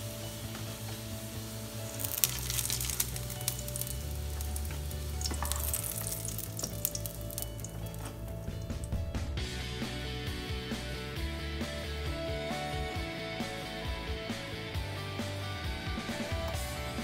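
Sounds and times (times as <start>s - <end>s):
patties sizzling in hot oil: 0.0s - 9.4s.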